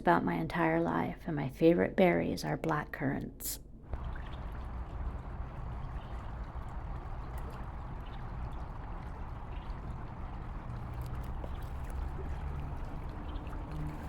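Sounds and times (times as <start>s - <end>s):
water rushing: 3.9s - 14.0s.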